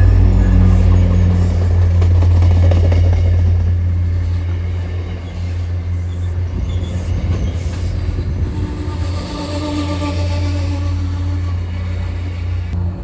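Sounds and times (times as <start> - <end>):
locomotive horn chord: 0.0 - 4.2, 8.4 - 12.3
train running on rails: 0.0 - 13.0.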